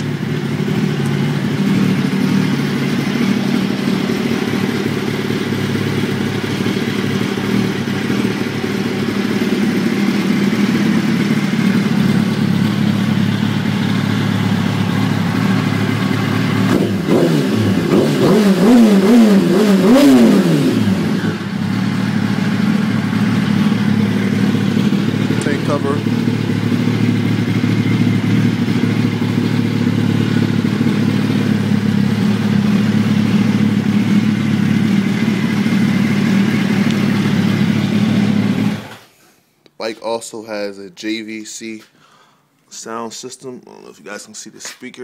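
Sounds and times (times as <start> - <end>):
motorcycle engine idling and revving: 0.0 - 39.1.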